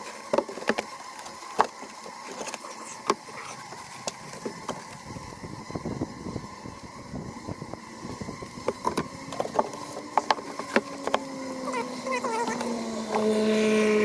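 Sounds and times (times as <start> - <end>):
honeybees humming: 0.0 - 14.0
wooden hive parts knocking: 8.6 - 11.3.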